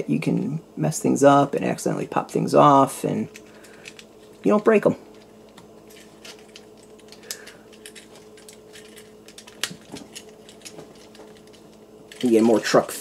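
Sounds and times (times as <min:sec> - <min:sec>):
plastic toy parts clicking: 0:06.2 - 0:12.5.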